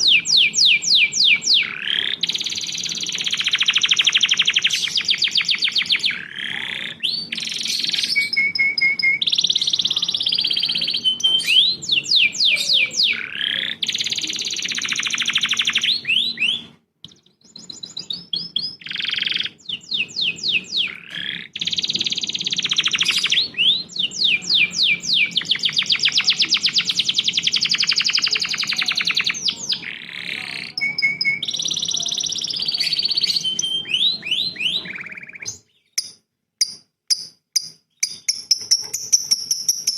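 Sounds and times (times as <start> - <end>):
songbird trills and whistles: 0.0 - 36.2.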